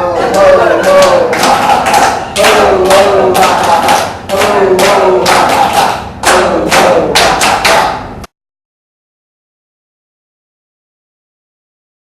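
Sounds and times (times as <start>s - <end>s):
group laughing and shouting: 0.0s - 4.1s.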